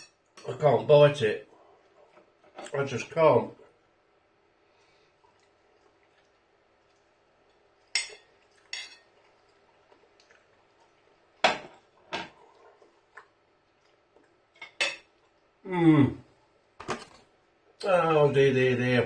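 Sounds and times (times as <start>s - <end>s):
cutlery clinking against dish: 8.0s - 9.1s.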